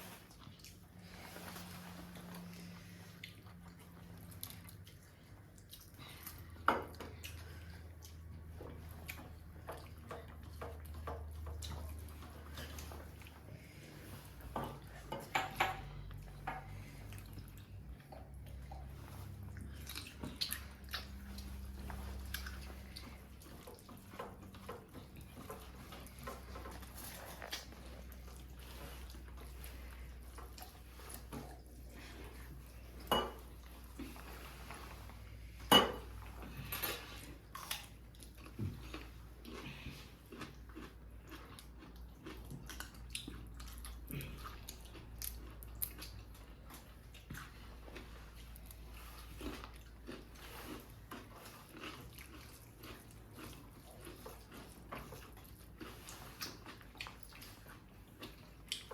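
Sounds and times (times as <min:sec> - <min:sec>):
dishes and cutlery clinking: 0:14.5 - 0:16.8, 0:32.9 - 0:33.6, 0:35.6 - 0:37.2.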